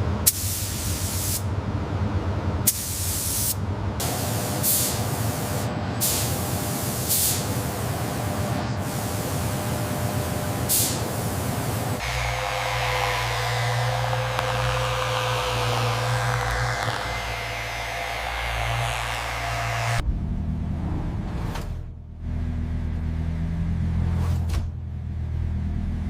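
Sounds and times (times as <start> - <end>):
spraying hiss: 0.3 - 1.4, 2.7 - 20.0
low machine hum: 3.6 - 24.0.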